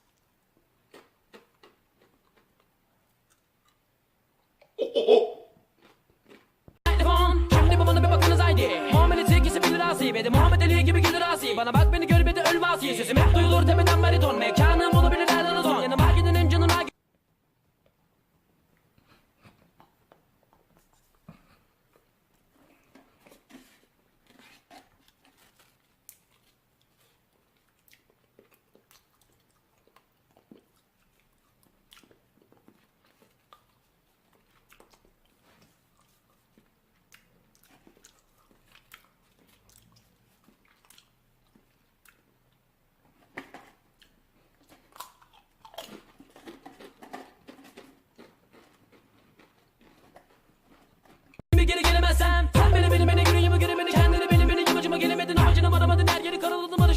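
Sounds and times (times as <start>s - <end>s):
rustling or crunching: 22.6s - 28.6s, 44.6s - 51.4s.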